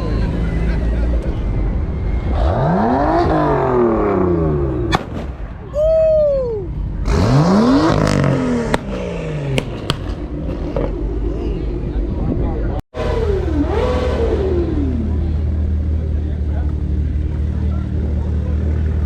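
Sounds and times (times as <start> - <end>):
idling engines rumble: 0.0 - 19.0
sharp crack: 4.9 - 5.6, 7.8 - 11.2
car engine revving: 6.9 - 12.0, 13.0 - 16.4.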